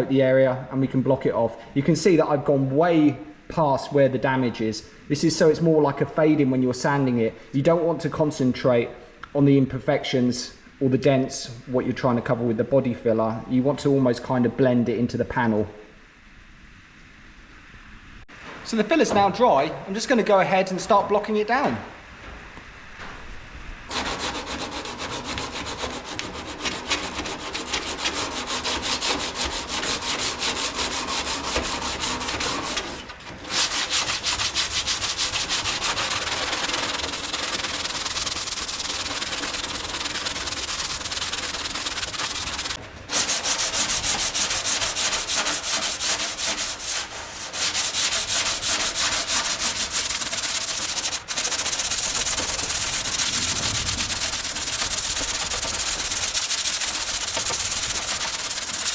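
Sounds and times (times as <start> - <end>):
sandpaper sanding body filler: 23.9 - 58.9.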